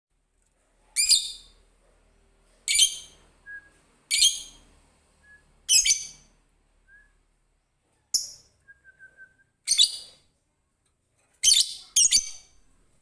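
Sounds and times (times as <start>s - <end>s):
lovebird shrill calls: 5.7s - 6.3s.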